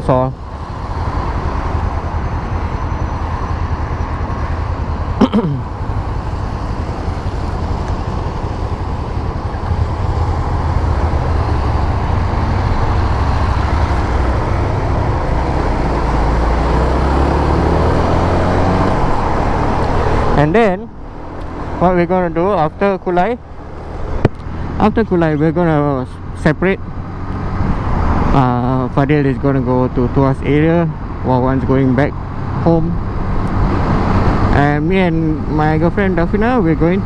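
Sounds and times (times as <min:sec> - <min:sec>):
motorcycle engine running: 0:00.0 - 0:29.4
road and wind noise: 0:00.0 - 0:37.0.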